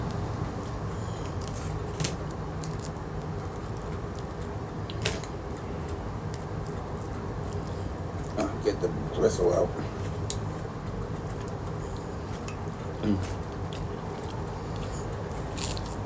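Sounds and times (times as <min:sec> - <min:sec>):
steady low hum: 0:00.0 - 0:16.0
food packaging crinkling: 0:13.2 - 0:16.0.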